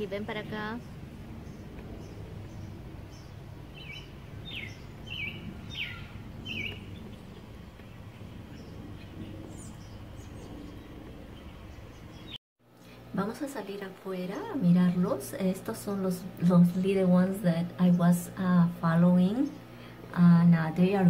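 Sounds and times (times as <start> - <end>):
low outdoor background noise: 0.0 - 21.0
small bird chirping: 0.1 - 13.0.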